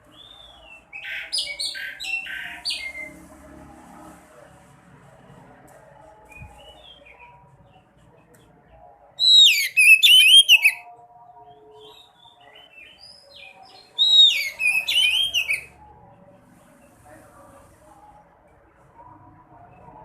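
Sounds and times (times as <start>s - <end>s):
songbird whistling and twittering: 0.1s - 3.1s, 6.3s - 7.4s, 9.2s - 10.9s, 11.7s - 15.8s.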